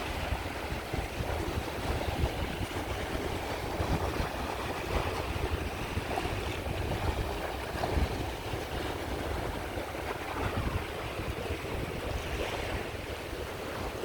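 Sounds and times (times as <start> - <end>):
waves washing on shore: 0.0 - 14.0.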